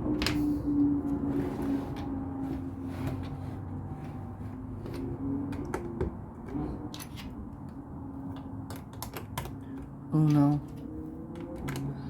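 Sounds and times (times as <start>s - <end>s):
plastic pieces clicking: 8.3s - 12.0s.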